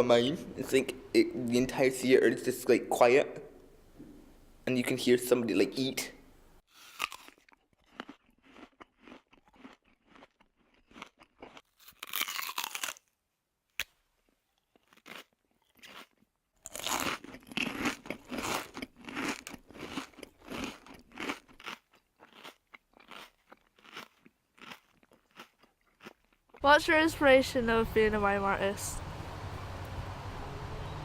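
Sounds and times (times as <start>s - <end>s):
person crunching food: 6.7s - 26.6s.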